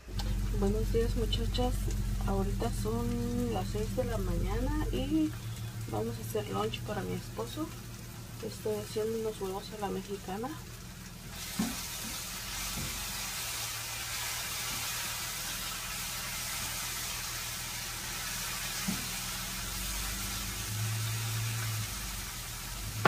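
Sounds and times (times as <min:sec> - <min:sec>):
low steady hum: 0:00.0 - 0:11.4
vegetables sizzling in a pan: 0:00.0 - 0:23.0.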